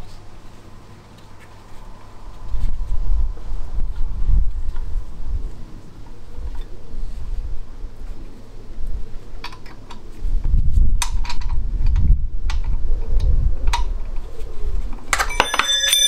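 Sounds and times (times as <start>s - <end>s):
low handling rumble: 0.0s - 9.4s.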